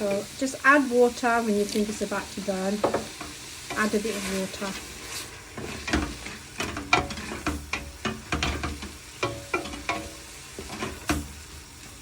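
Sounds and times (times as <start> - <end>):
onions sizzling in oil: 0.0 - 12.0
spoon knocking and scraping pan: 2.8 - 12.0.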